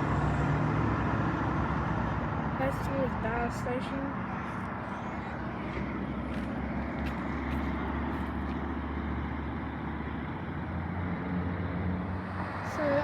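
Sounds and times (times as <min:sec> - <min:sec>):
vehicle engine low hum: 0:00.0 - 0:13.0.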